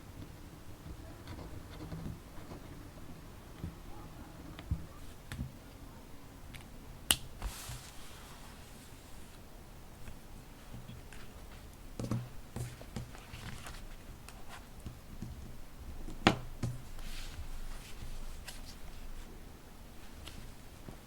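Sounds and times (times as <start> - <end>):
paper rustling: 7.4 - 9.4, 12.5 - 14.7.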